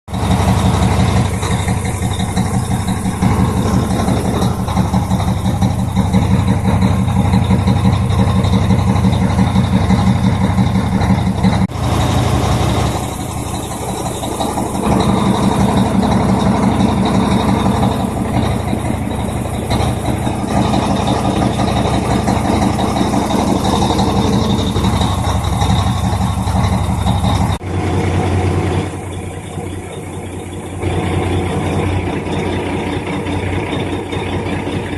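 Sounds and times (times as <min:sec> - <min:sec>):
diesel air heater rumbling: 0:00.1 - 0:34.9.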